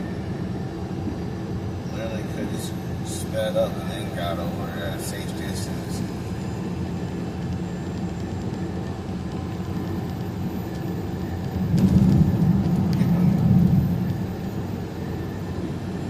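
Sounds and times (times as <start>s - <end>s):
road noise inside cab: 0.0s - 16.0s
truck engine drone: 0.0s - 16.0s.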